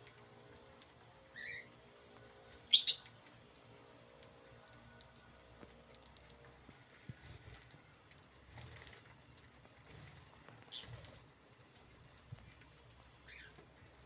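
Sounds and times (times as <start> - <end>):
birds tapping and scuffling: 0.0 - 14.0
faint bird chirp: 1.3 - 1.7, 2.6 - 3.1, 13.2 - 13.6.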